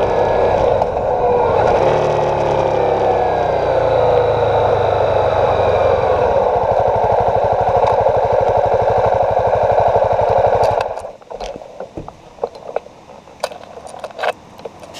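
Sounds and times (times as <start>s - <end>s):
motorcycle engine idling: 0.0s - 11.2s.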